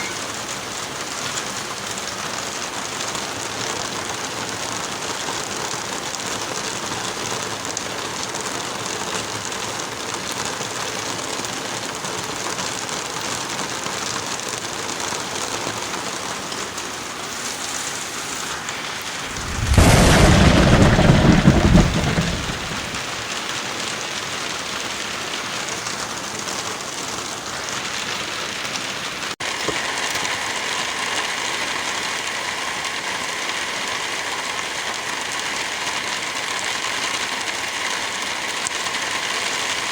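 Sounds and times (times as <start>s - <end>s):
heavy rain: 0.0s - 39.9s
loud thunder clap: 19.2s - 23.1s.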